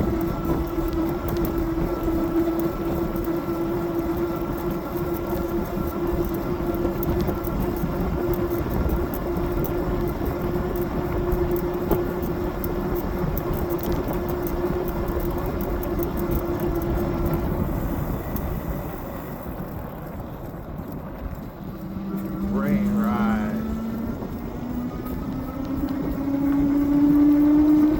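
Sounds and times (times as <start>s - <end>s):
electric motor whine: 21.3s - 27.9s.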